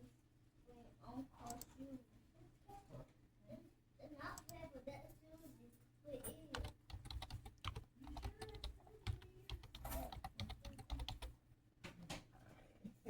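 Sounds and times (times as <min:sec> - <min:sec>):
quick irregular clicks and taps: 0:06.5 - 0:11.3.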